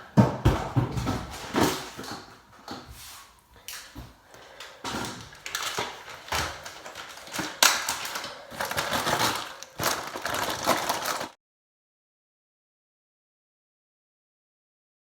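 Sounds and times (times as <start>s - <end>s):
kitchen handling rustles and clatters: 0.0s - 11.4s.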